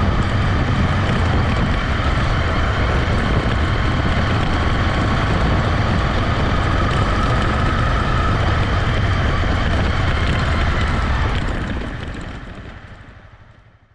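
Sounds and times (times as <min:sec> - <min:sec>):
motorcycle engine running: 0:00.0 - 0:13.9.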